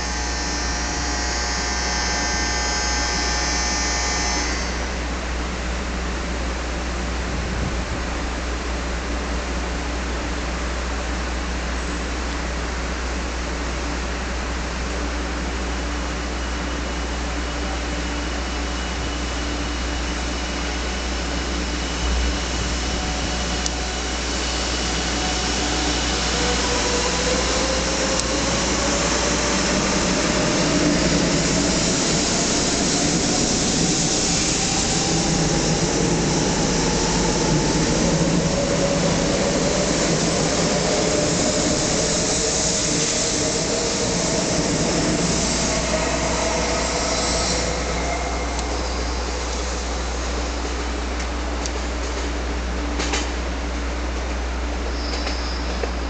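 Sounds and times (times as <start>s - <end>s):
electric train motors whining: 0.0s - 5.0s, 19.6s - 52.3s
train rushing noise: 0.0s - 56.0s.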